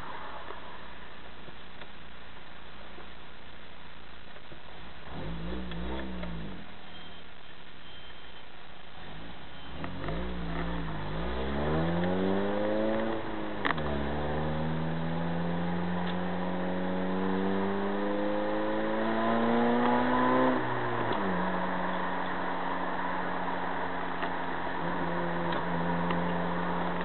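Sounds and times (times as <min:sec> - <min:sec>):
car engine accelerating: 0:05.0 - 0:06.8, 0:09.0 - 0:27.0.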